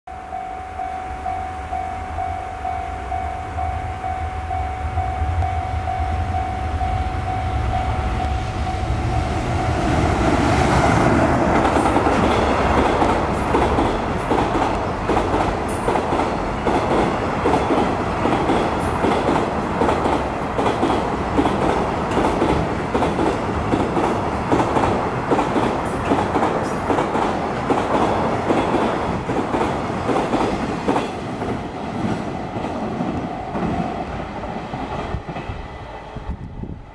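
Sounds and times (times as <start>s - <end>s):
level crossing warning tone: 0.1s - 10.0s
low train rumble: 0.1s - 36.9s.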